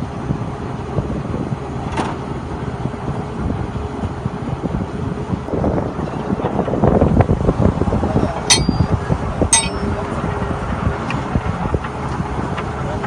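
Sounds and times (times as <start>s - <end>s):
sharp metallic clinks: 8.5s - 10.0s
drilling rig rumbling and knocking: 8.5s - 10.4s.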